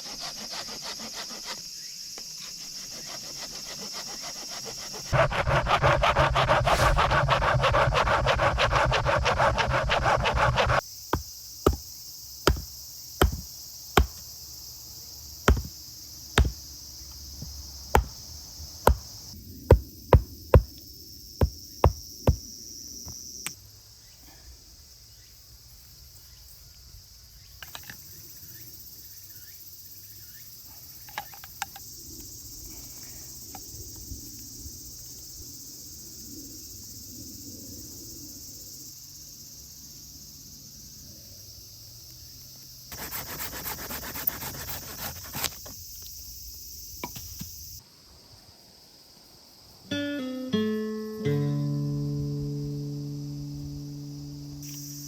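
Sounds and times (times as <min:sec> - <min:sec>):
insects chirring: 0:00.0 - 0:55.0
sharp knocks: 0:11.1 - 0:11.9, 0:12.5 - 0:14.2, 0:15.5 - 0:15.8, 0:16.4 - 0:16.6, 0:17.4 - 0:18.2, 0:18.8 - 0:19.1.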